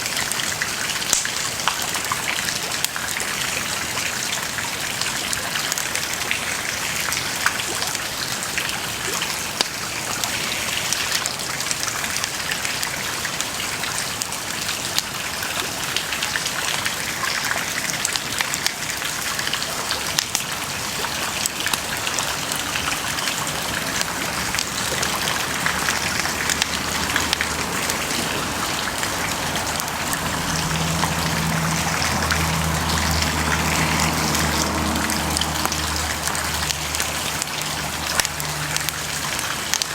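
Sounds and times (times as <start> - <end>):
bonfire crackling: 21.2 - 39.9.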